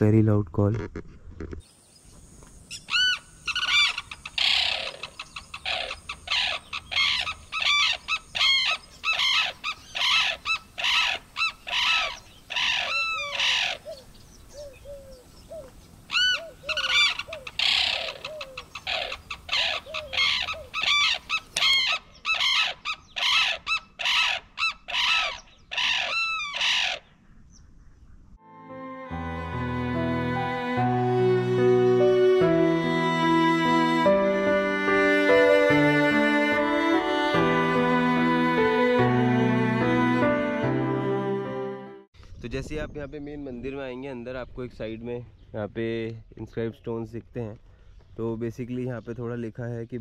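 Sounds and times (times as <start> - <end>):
cranes calling loudly: 2.7 - 14.0, 14.6 - 27.1.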